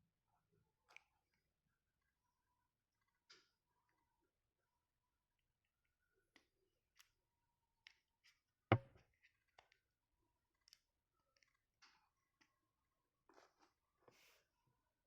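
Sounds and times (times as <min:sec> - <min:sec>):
sharp knock: 0:08.7 - 0:08.9
faint clicks and taps: 0:08.7 - 0:09.0.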